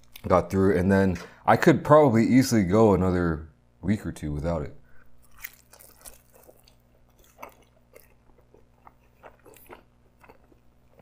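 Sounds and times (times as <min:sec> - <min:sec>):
person chewing pizza: 0:00.0 - 0:00.4, 0:04.9 - 0:11.0.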